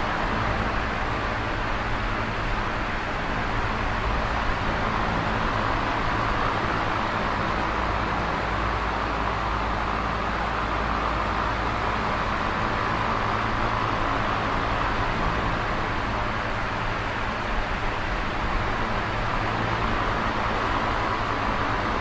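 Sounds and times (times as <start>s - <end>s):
electric fan running: 0.0s - 22.0s.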